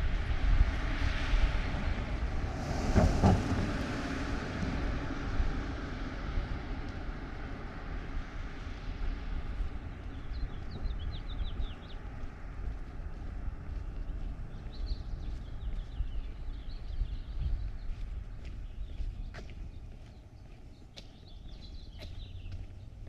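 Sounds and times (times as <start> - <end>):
low traffic rumble: 0.0 - 23.0
vehicle passing: 0.2 - 10.5.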